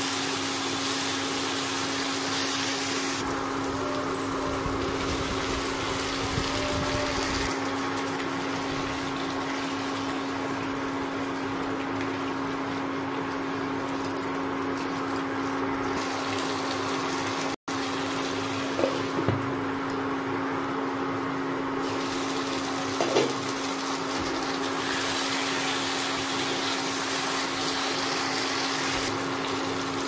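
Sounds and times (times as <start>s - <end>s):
chicken sizzling in hot oil: 0.0s - 13.9s, 14.7s - 20.9s, 21.6s - 30.0s.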